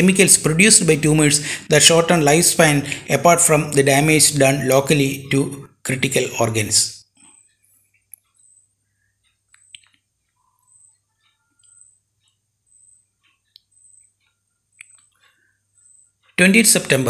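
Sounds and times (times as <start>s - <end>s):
low steady hum: 0.0s - 17.0s
faint bird chirps: 7.0s - 16.4s.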